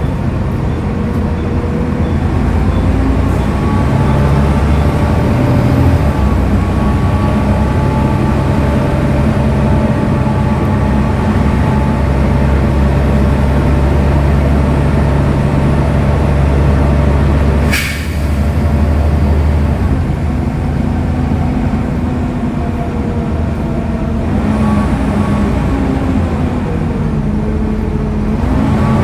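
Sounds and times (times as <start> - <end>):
bus diesel engine humming: 0.0 - 29.0
sharp air hiss: 17.7 - 18.6.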